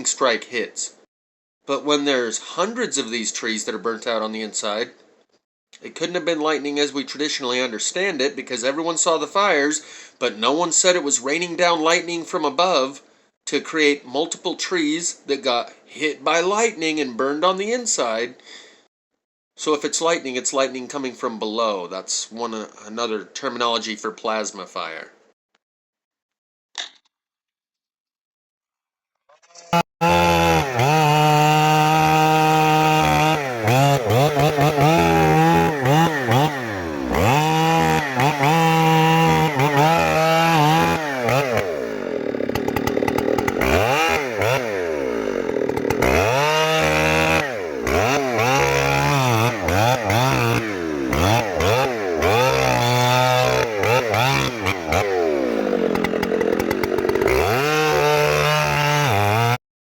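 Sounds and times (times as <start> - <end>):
chainsaw cutting into tree trunk: 29.7 - 59.6.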